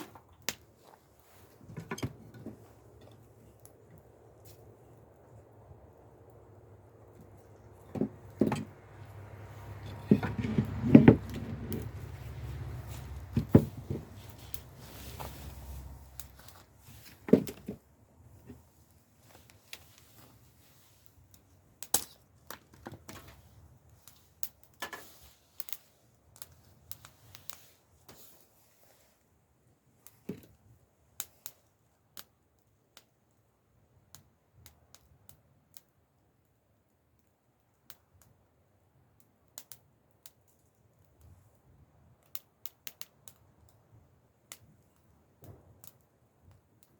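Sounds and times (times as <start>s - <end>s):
knocks and rustling handling: 0.0s - 3.5s, 7.1s - 8.8s, 9.6s - 20.8s
campfire crackling and popping: 0.0s - 28.6s, 29.6s - 46.9s.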